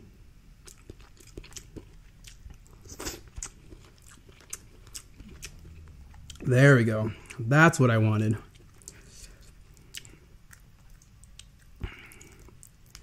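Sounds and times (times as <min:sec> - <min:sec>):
chewing crunches: 0:00.6 - 0:06.5, 0:08.4 - 0:13.0.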